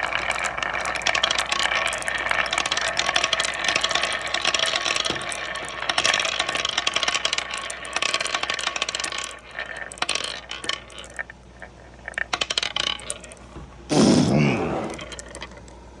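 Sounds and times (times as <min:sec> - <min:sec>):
marbles clattering down wooden run: 0:00.0 - 0:13.4.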